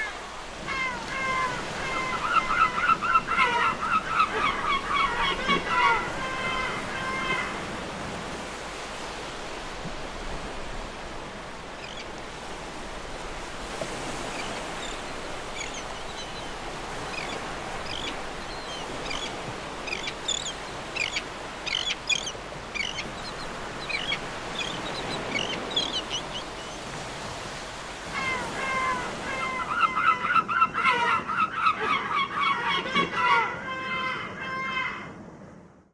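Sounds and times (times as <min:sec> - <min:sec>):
seagulls calling: 0:00.0 - 0:08.3, 0:13.9 - 0:27.0, 0:28.1 - 0:35.2.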